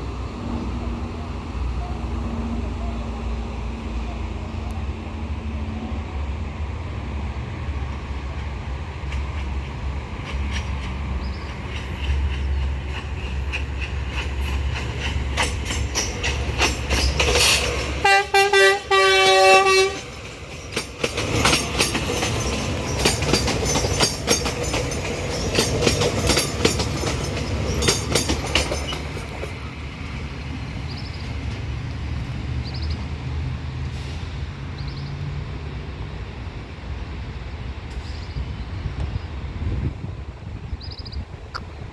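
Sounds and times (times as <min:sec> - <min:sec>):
train engine rumble: 0:00.0 - 0:41.9
wheels clicking over rail joints: 0:08.3 - 0:32.9
train horn blasts: 0:18.0 - 0:20.1.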